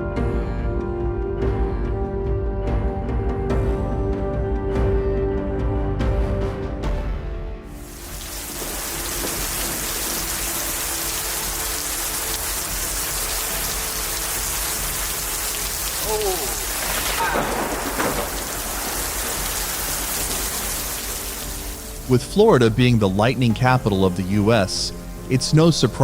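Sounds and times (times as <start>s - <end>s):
heavy rain pouring: 7.7s - 26.0s.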